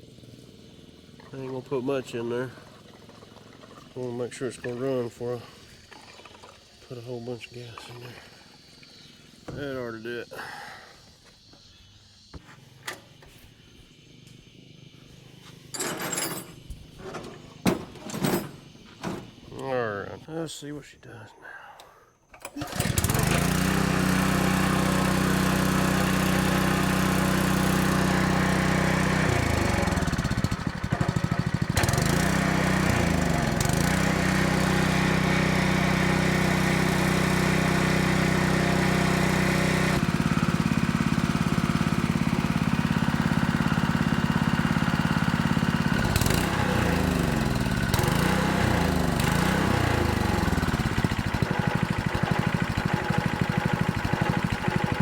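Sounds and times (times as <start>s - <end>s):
water pump engine running: 0.0s - 10.4s, 22.6s - 55.0s.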